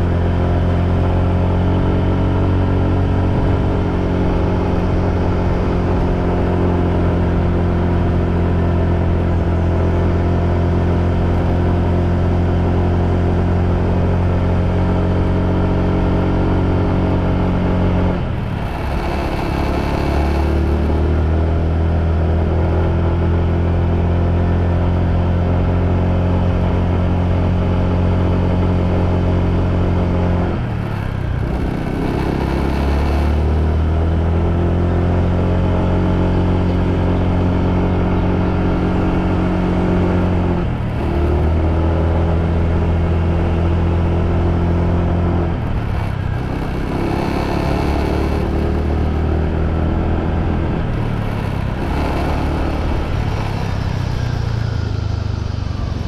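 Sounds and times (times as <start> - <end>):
motorbike engine running: 0.0 - 56.0
low rush: 47.6 - 56.0.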